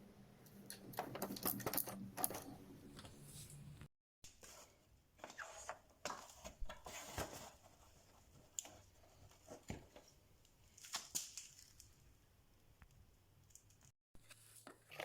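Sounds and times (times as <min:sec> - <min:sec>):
small parts and tools clicking: 0:00.7 - 0:02.5.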